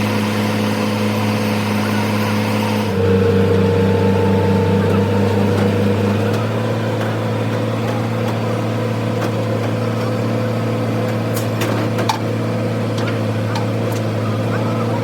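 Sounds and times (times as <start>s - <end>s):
steady machine hum: 0.0s - 9.2s.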